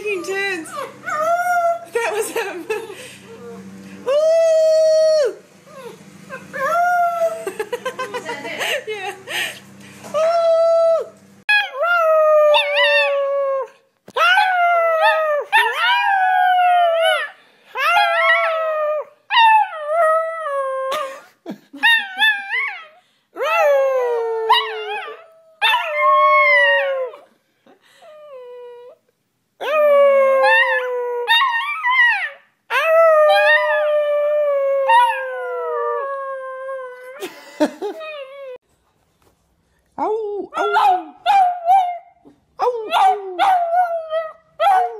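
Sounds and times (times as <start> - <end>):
puppy howling: 0.0 - 1.9, 3.4 - 7.4, 21.8 - 27.2, 29.6 - 37.2.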